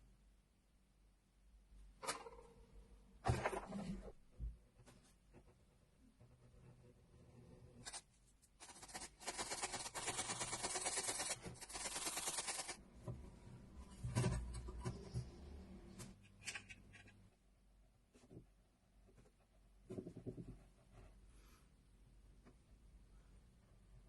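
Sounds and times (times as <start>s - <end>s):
rough rubbing or scraping: 7.7s - 12.8s.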